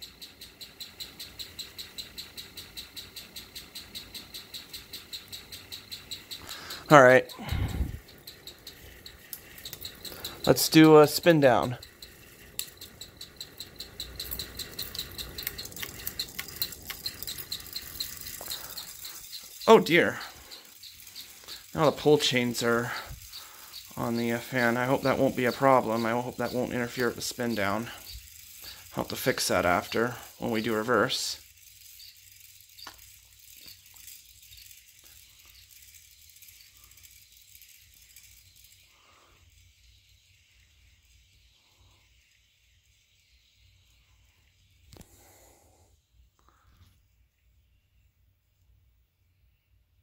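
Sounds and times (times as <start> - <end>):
pull chains rattling: 0.0 - 39.1
fan ticking: 0.0 - 43.1
ceiling fan rumble: 0.0 - 45.4.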